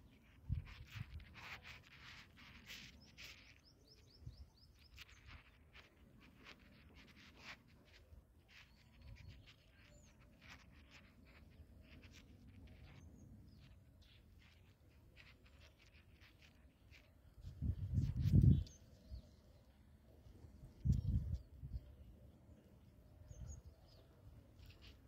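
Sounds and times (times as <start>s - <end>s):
soft clicks and rustles: 0.0s - 19.0s
small bird chirping: 0.0s - 25.0s.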